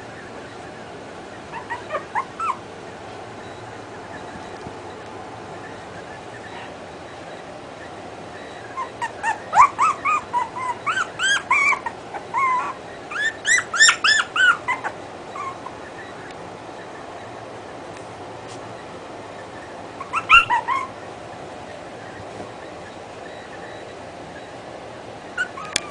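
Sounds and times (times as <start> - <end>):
puppy yipping and whining: 0.1 - 2.7, 7.8 - 16.9, 19.3 - 21.1, 25.3 - 25.9.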